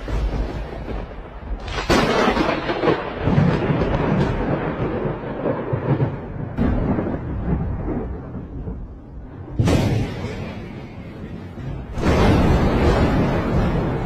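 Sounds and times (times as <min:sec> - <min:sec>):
thunder cracks: 0:00.0 - 0:14.0
thunder rumbling: 0:00.0 - 0:14.0.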